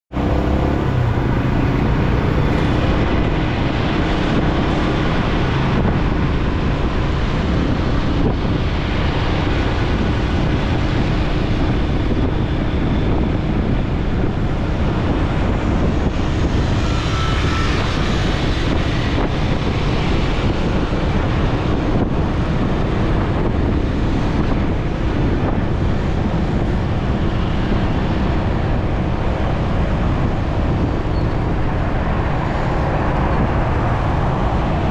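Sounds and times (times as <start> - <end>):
motorcycle engine: 0.1 - 6.1
wind rushing over microphone: 0.1 - 34.9.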